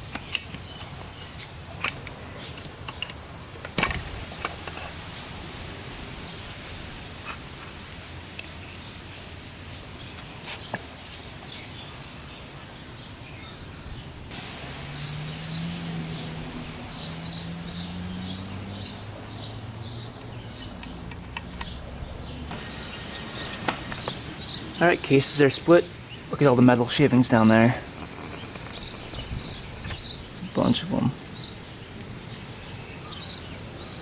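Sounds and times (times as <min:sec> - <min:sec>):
background hiss: 0:00.0 - 0:34.0
bird chirping: 0:08.0 - 0:34.0.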